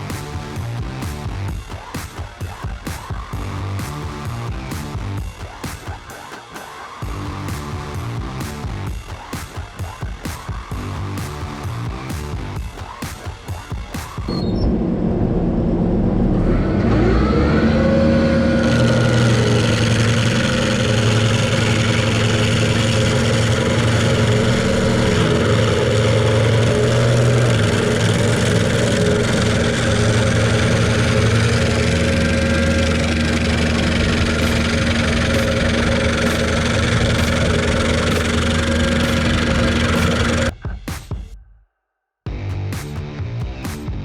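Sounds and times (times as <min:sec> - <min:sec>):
large engine revving: 0:14.3 - 0:40.5.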